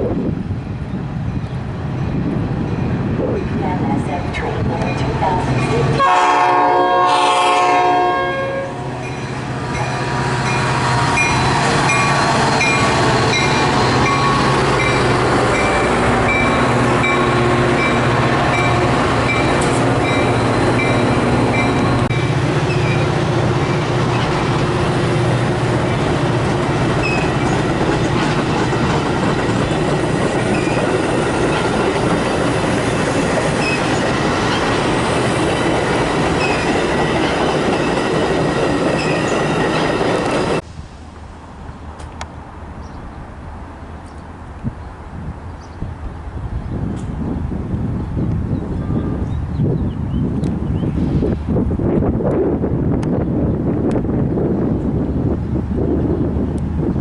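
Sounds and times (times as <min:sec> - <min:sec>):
train passing with wheel clatter: 0:00.0 - 0:57.0
train horn: 0:06.0 - 0:08.9, 0:48.8 - 0:49.4.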